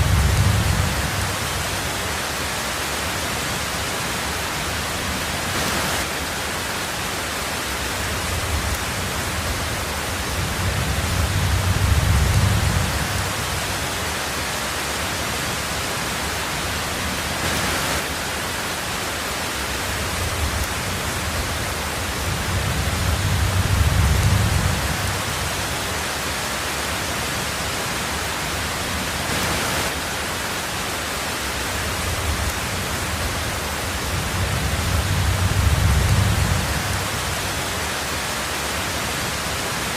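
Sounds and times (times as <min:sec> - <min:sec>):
thunder rumbling: 0:00.0 - 0:01.9, 0:08.0 - 0:14.1, 0:20.0 - 0:25.8, 0:31.9 - 0:37.7
heavy rain on a tin roof: 0:00.0 - 0:39.9.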